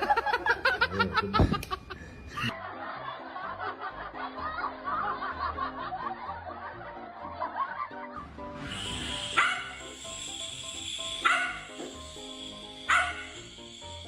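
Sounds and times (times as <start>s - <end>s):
people laughing: 0.0s - 8.4s
background music: 0.0s - 14.0s
dog barking: 9.4s - 9.8s, 11.2s - 11.7s, 12.9s - 13.4s.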